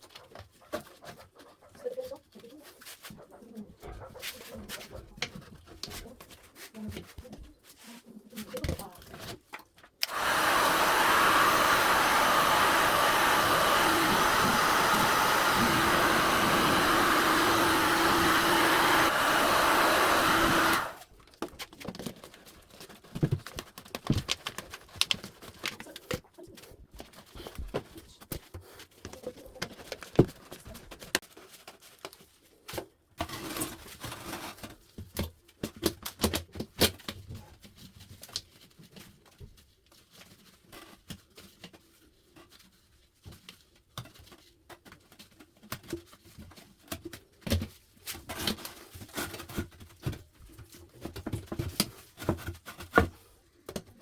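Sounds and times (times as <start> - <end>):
blower motor running: 10.0 - 21.0.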